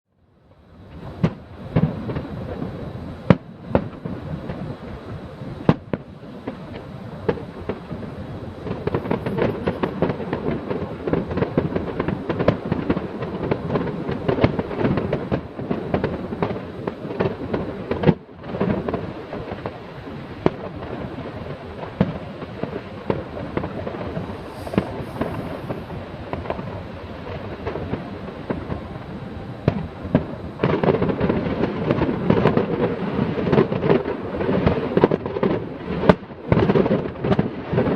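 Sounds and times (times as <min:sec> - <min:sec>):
fireworks bangs and crackling: 0:00.5 - 0:37.9
loud fireworks booms: 0:00.7 - 0:37.9.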